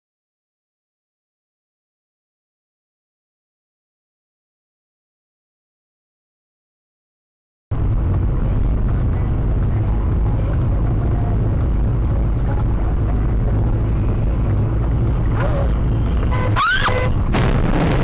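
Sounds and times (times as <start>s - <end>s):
car engine and road drone: 7.7s - 18.0s.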